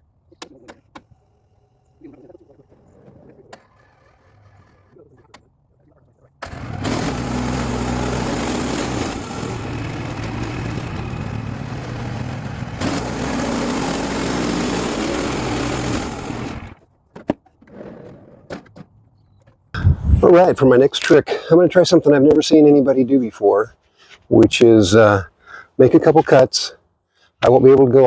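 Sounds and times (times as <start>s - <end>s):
engine hum: 0.0s - 16.8s
band sawmill cutting log: 6.4s - 16.8s.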